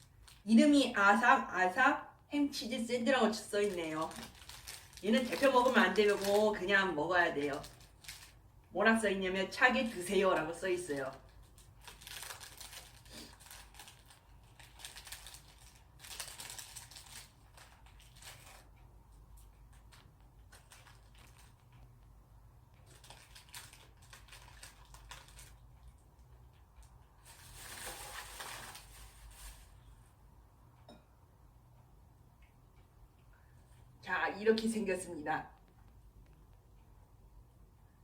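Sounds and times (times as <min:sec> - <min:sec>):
plastic wrapping crinkling: 0:00.0 - 0:00.6, 0:03.1 - 0:08.4, 0:10.0 - 0:18.7, 0:19.7 - 0:21.7, 0:22.8 - 0:25.9, 0:27.1 - 0:29.8.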